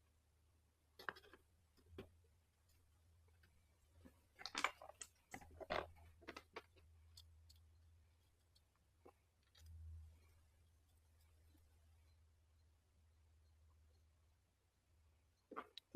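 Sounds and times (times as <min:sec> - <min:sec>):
small parts and tools clicking: 0:01.0 - 0:12.2.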